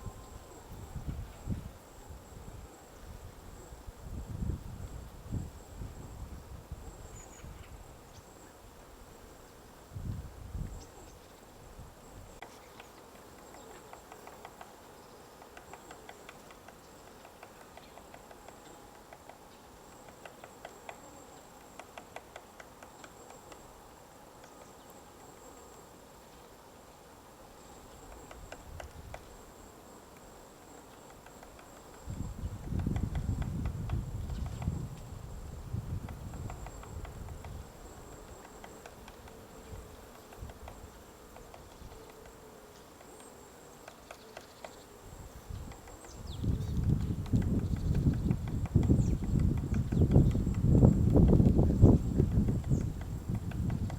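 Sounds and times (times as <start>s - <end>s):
woodpecker tapping on wood: 12.4s - 23.8s, 27.9s - 29.4s, 30.1s - 44.9s, 45.5s - 53.9s.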